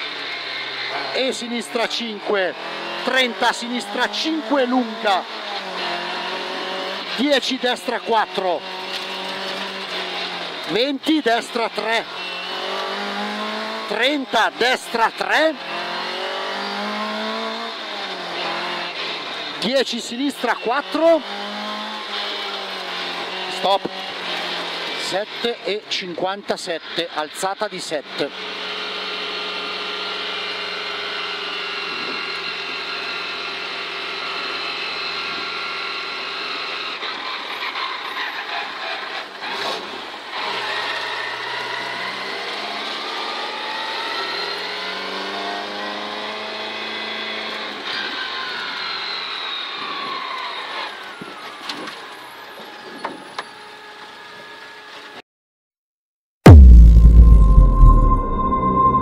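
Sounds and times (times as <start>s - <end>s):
rally car engine from inside: 4.4s - 7.0s, 15.6s - 19.0s, 40.5s - 47.8s.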